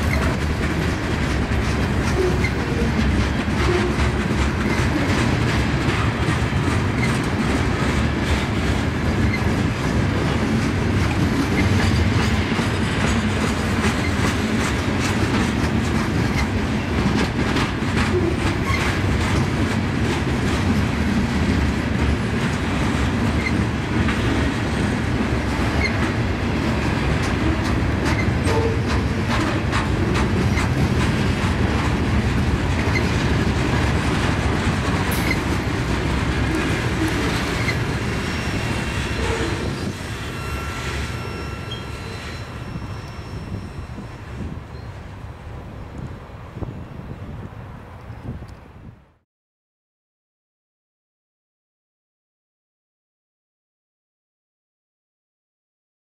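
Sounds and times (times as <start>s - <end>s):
wheels clickety-clack: 0.0s - 43.8s
train cars rumbling past: 0.0s - 48.6s
faint wheel squeal: 38.3s - 44.9s.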